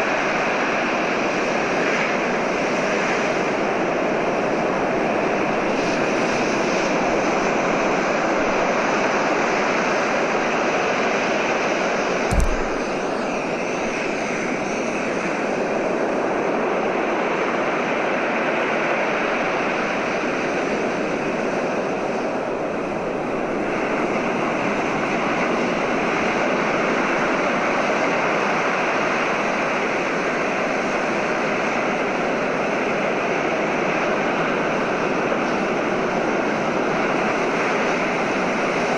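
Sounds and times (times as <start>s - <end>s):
sharp click: 12.3s - 13.2s.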